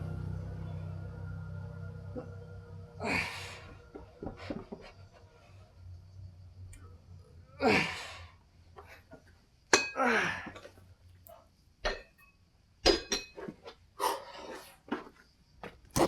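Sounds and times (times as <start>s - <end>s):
man straining exhalations: 3.0s - 4.9s, 7.6s - 8.9s
dumbbell plates clinking: 9.7s - 10.0s, 11.8s - 13.6s.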